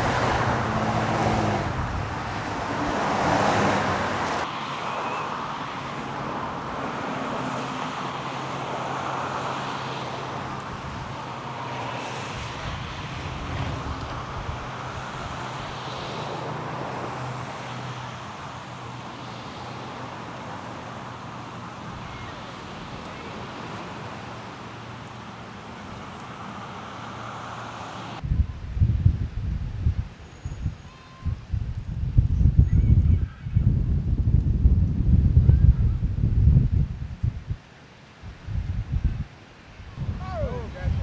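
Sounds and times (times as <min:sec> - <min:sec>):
vehicle passing close: 0:00.0 - 0:28.2
traffic hum: 0:00.0 - 0:30.5, 0:33.6 - 0:41.0.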